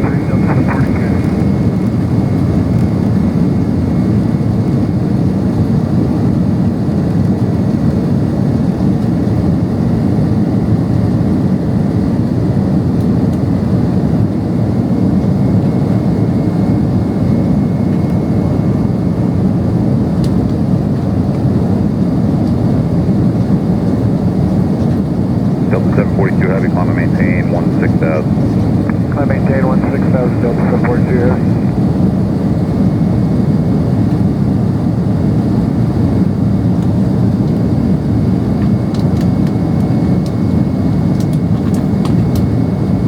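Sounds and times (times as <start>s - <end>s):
faint high whine: 0.0s - 1.8s, 25.7s - 32.1s
jet cabin engine rumble: 0.0s - 9.5s, 13.6s - 42.6s.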